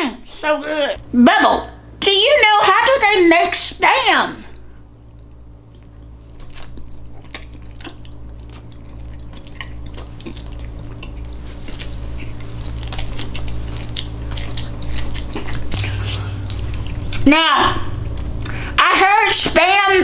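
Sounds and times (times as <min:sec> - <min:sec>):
steady low hum: 0:00.0 - 0:20.0
wet chewing sounds: 0:04.5 - 0:17.3, 0:17.9 - 0:18.8.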